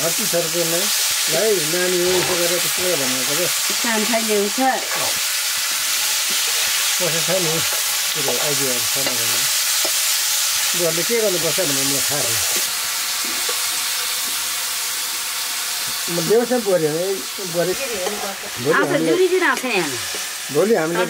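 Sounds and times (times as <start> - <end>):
onions sizzling in oil: 0.0 - 21.0
metal spatula stirring: 6.0 - 10.1.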